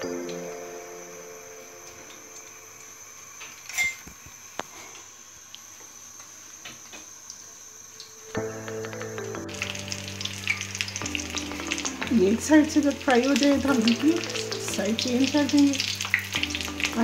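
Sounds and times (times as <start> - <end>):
oil hissing: 9.2 - 17.0.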